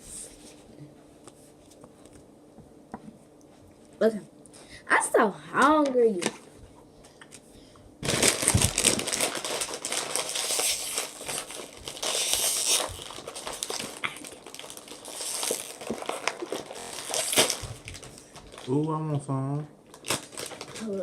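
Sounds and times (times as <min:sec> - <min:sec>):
plastic chip bag crinkling: 0:08.0 - 0:21.0.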